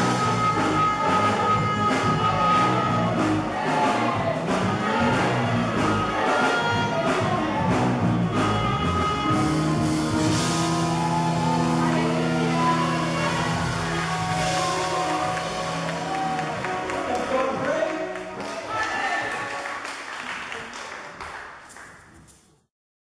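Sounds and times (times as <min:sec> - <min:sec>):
drum beat: 0:00.0 - 0:17.3
live worship band music: 0:00.0 - 0:20.0.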